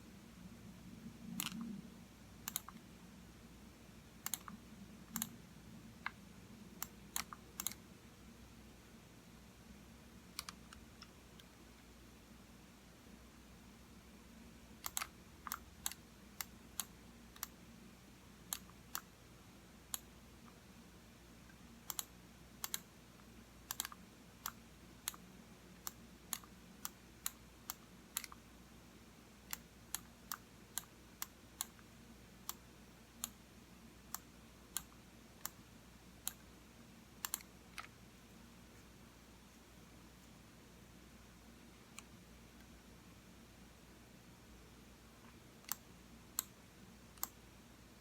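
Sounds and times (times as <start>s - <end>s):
computer mouse clicking: 1.3s - 1.8s, 2.4s - 2.9s, 4.2s - 5.4s, 6.8s - 7.9s, 10.3s - 11.5s, 14.8s - 17.6s, 18.5s - 19.1s, 19.9s - 20.6s, 21.5s - 22.9s, 23.7s - 28.4s, 29.4s - 33.4s, 34.1s - 35.6s, 36.2s - 36.5s, 37.2s - 38.0s, 41.9s - 42.8s, 45.2s - 47.4s.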